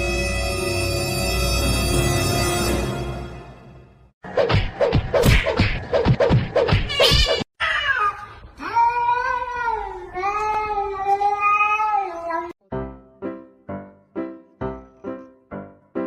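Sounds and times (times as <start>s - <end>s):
piano music: 12.6s - 16.0s.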